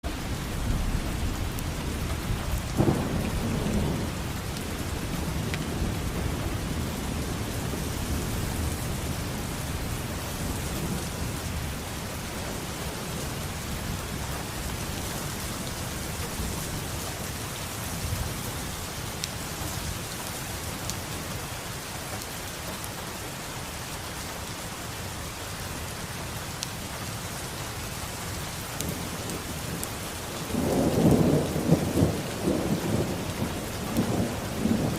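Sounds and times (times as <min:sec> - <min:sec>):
steady rain: 0:00.0 - 0:34.9
thunder rumbling: 0:00.1 - 0:19.8, 0:28.8 - 0:34.9.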